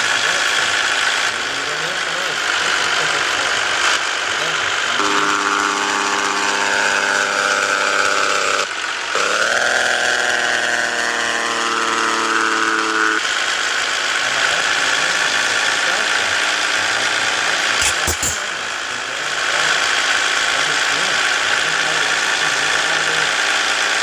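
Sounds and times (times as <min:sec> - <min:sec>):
clicks: 0:17.8 - 0:18.5.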